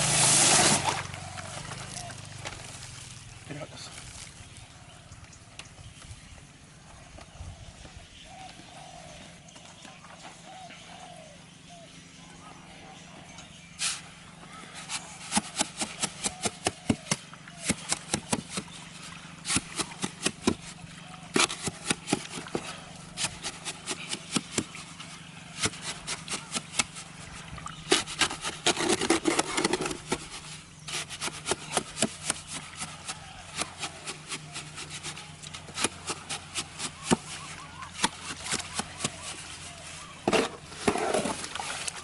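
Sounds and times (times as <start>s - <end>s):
hand tool scraping mortar: 0.0s - 1.1s, 14.8s - 18.7s, 19.5s - 24.8s, 25.6s - 27.0s, 27.9s - 41.9s.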